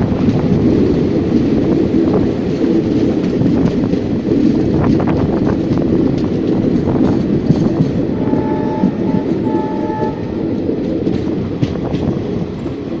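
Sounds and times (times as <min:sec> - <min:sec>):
train rumbling on rails: 0:00.0 - 0:13.0
wheels clicking and clacking: 0:00.0 - 0:13.0
faint train horn: 0:08.1 - 0:10.4.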